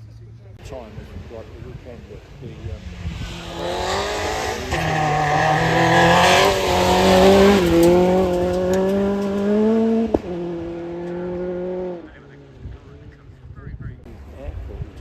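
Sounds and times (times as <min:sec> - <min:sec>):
rally car engine accelerating: 0:00.3 - 0:13.4
sharp crack at gearshift: 0:07.0 - 0:10.3.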